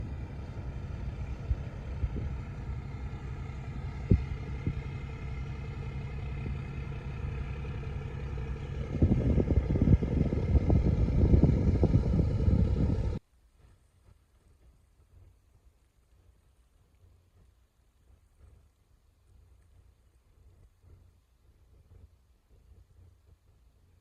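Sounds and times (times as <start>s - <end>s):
steady drone: 0.0s - 13.2s
boat engine humming: 0.0s - 24.0s
rough rumble with crackles: 0.0s - 24.0s.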